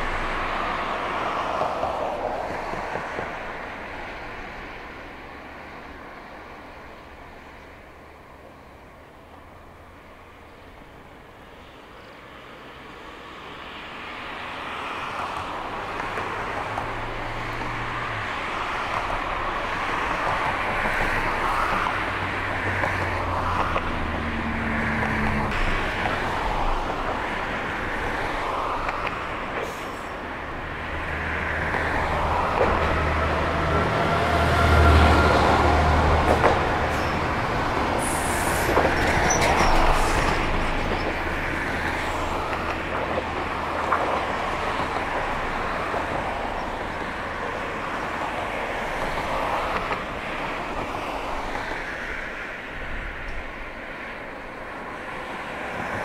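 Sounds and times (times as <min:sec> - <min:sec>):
train wheels on rails: 0:00.0 - 0:10.2, 0:10.8 - 0:56.0
diesel engine drone: 0:21.8 - 0:47.9.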